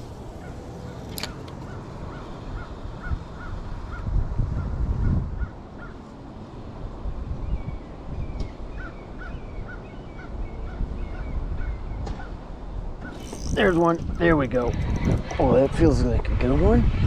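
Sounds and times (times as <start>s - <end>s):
low rumble: 13.4s - 17.0s.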